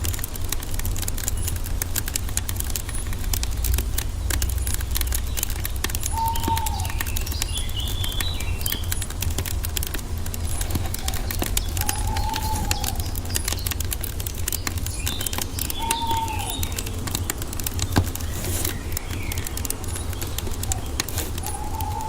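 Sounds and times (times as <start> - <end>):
wood fire crackling and popping: 0.0 - 22.0
high bird chirps: 4.6 - 9.3, 10.4 - 22.0
bird whistle: 6.0 - 8.9, 10.9 - 13.7, 15.0 - 16.9, 20.6 - 22.0.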